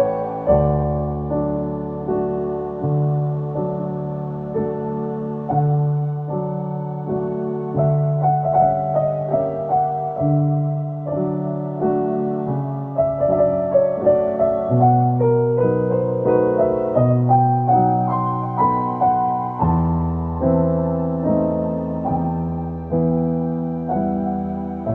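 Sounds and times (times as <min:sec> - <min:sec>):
soft piano music: 0:00.0 - 0:24.9.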